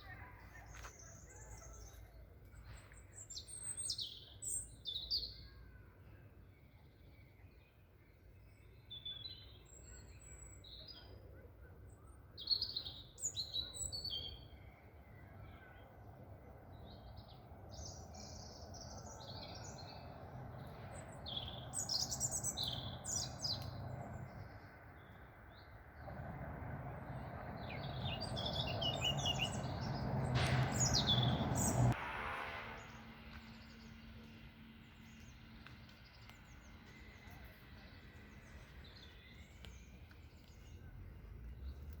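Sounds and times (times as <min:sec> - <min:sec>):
birds chirping: 0:16.8 - 0:32.0, 0:32.8 - 0:42.0
low rumbling noise: 0:19.7 - 0:39.5.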